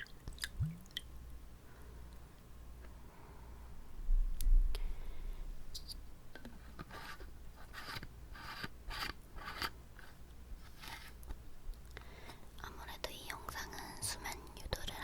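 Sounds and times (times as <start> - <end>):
wet mouth clicks: 0.0 - 1.1.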